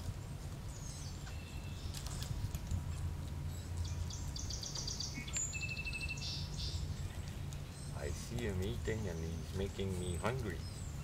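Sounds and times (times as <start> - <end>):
low background rumble: 0.0 - 11.0
small birds trilling: 0.6 - 11.0
thin steady bird whistle: 3.6 - 8.1.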